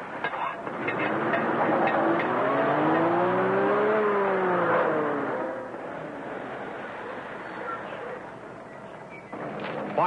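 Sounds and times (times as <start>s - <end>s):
car engine accelerating: 0.6s - 7.7s.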